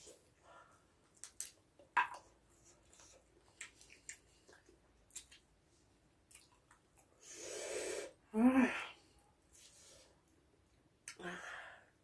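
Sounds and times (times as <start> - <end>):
wet chewing and mouth smacks: 1.1 - 5.5, 6.2 - 7.1.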